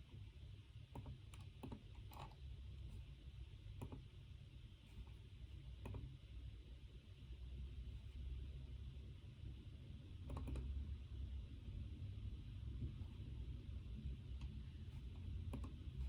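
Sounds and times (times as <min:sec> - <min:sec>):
low room hum: 0:00.0 - 0:16.0
computer keyboard keystrokes: 0:00.9 - 0:02.4, 0:10.2 - 0:10.7, 0:15.4 - 0:16.0.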